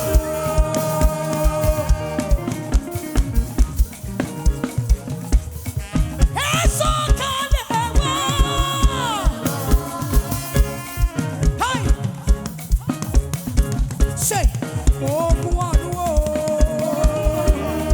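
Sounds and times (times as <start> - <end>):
high sliding melodic line: 0.0 - 13.2
drum kit beat: 0.0 - 17.9
live gospel band playing: 0.0 - 17.9.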